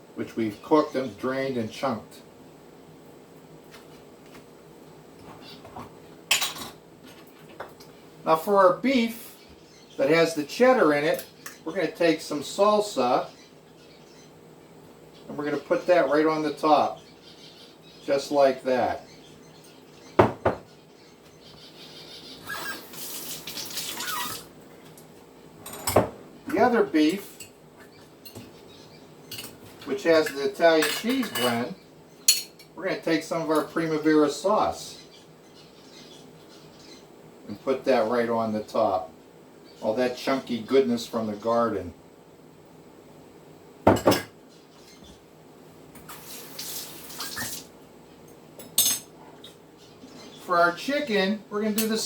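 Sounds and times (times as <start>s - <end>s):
spoon knocking on dish: 20.2s - 20.7s
water running from kitchen tap: 22.8s - 24.5s, 46.1s - 47.7s.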